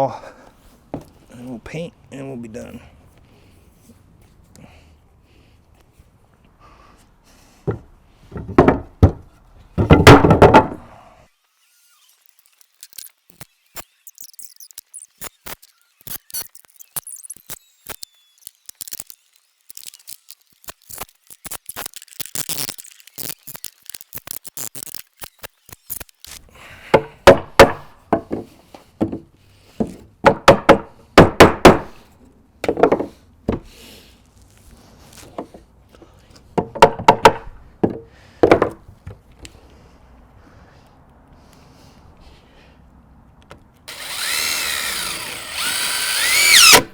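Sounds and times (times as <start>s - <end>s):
sharp knocks on wooden wall: 7.7s - 10.8s, 26.9s - 28.4s, 30.2s - 32.0s, 36.6s - 38.8s.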